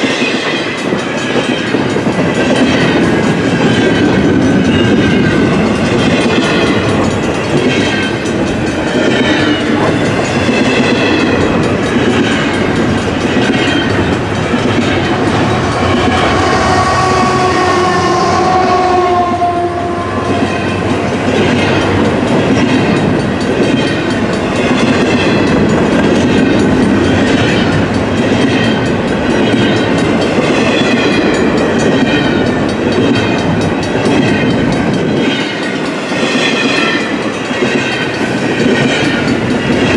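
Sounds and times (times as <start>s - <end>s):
wheels clickety-clack: 0.0s - 18.6s, 19.9s - 39.9s
freight train rolling past: 0.0s - 39.9s
distant train horn: 8.4s - 22.2s.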